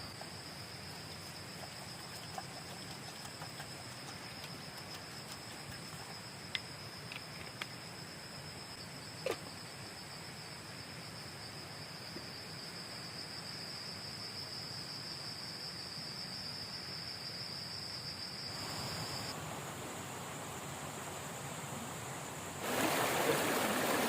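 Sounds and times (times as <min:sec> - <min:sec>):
insect trilling: 0:00.0 - 0:12.1
flowing river water: 0:20.9 - 0:24.0.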